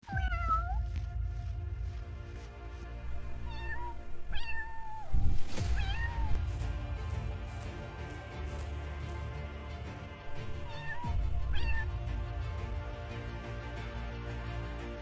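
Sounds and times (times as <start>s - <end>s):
low background music: 0.0s - 15.0s
kitten meowing: 3.5s - 5.2s, 10.7s - 11.9s.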